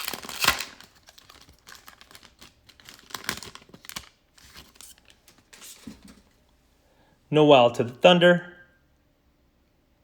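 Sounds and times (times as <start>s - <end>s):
wrapper ripping: 0.0s - 5.2s
wrapper crinkling: 0.0s - 5.4s.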